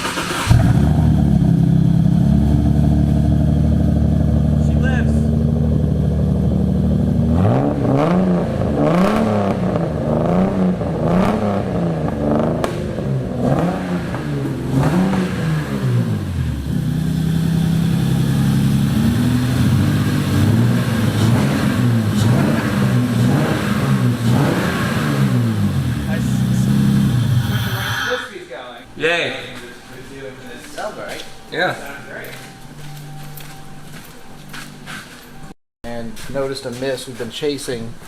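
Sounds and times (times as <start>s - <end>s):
car engine idling and revving: 0.0s - 27.9s.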